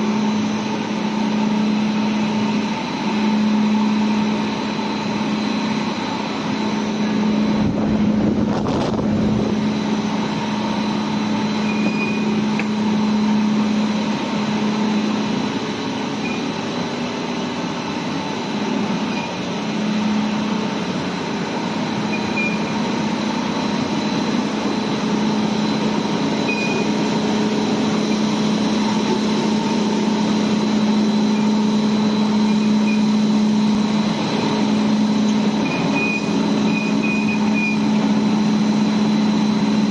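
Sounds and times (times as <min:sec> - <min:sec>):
boiler machinery drone: 0:00.0 - 0:39.9
short low rumble: 0:07.5 - 0:09.6.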